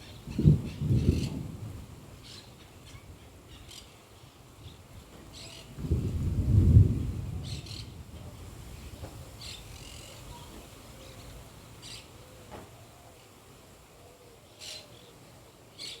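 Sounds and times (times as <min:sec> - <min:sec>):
low roll of thunder: 0:00.2 - 0:02.1, 0:05.7 - 0:09.2.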